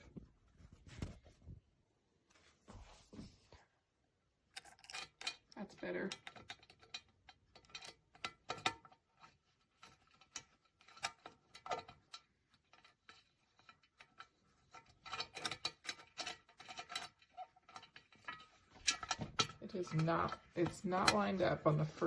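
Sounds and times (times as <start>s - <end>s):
small metallic clicks and taps: 4.5s - 21.6s.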